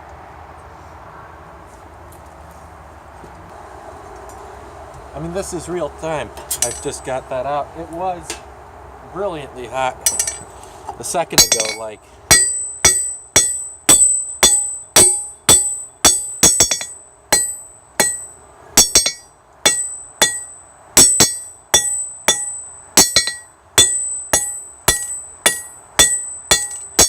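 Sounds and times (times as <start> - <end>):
hammer striking metal on anvil: 6.6 - 7.0, 10.1 - 10.5, 11.4 - 27.0.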